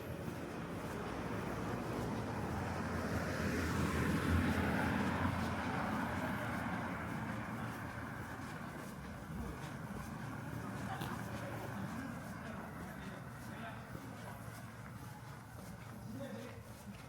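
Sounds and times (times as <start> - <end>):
car driving past: 1.6 - 8.5.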